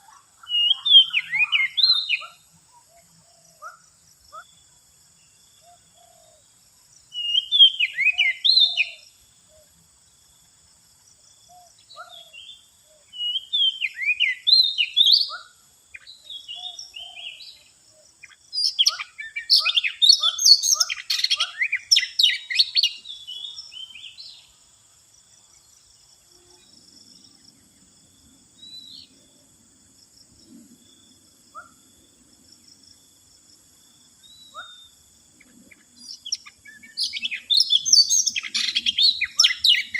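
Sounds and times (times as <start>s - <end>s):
bird song whistles and chirps: 0.4s - 4.4s, 7.1s - 9.2s, 11.7s - 24.5s, 34.2s - 39.9s.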